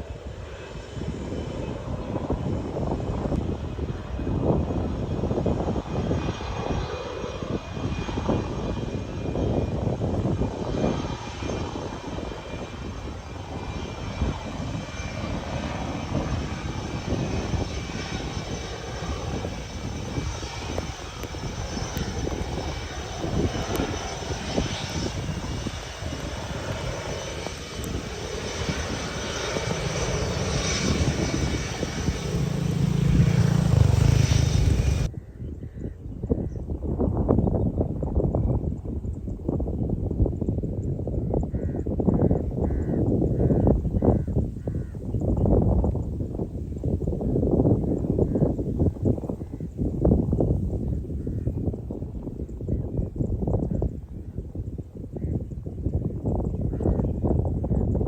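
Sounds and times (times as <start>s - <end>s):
faint high engine whine: 0.0s - 36.6s
aircraft engines rumbling: 0.0s - 58.0s.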